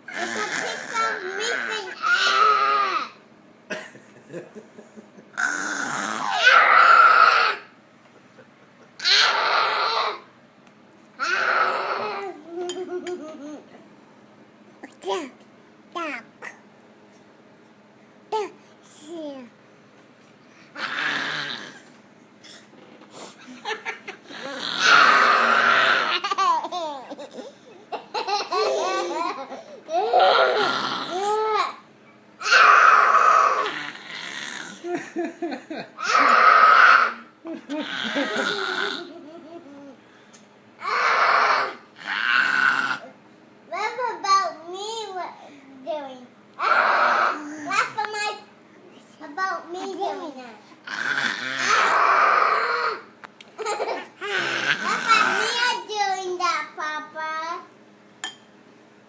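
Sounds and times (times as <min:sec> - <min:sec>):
baby squealing growls: 0:00.1 - 0:03.1, 0:05.4 - 0:07.7, 0:09.0 - 0:10.3, 0:11.2 - 0:12.3, 0:20.8 - 0:21.8, 0:24.3 - 0:26.4, 0:29.9 - 0:31.6, 0:32.4 - 0:34.8, 0:36.0 - 0:39.1, 0:40.8 - 0:43.1, 0:46.6 - 0:47.6, 0:50.8 - 0:53.1, 0:54.2 - 0:55.6
child shrieking: 0:00.1 - 0:03.1, 0:05.4 - 0:07.7, 0:09.0 - 0:10.3, 0:11.2 - 0:12.2, 0:24.4 - 0:26.3, 0:32.4 - 0:34.5, 0:36.0 - 0:37.3, 0:40.8 - 0:43.0, 0:46.6 - 0:47.6, 0:50.9 - 0:53.1
child giggling: 0:12.4 - 0:13.8, 0:23.4 - 0:24.6, 0:25.3 - 0:30.7, 0:34.8 - 0:36.4, 0:37.4 - 0:40.0, 0:53.6 - 0:55.4.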